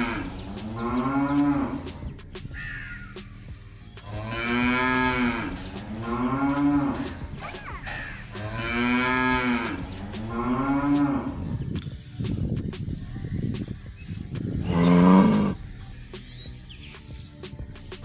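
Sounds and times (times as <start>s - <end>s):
cattle mooing: 0.0s - 1.9s, 4.1s - 11.4s, 14.7s - 15.6s.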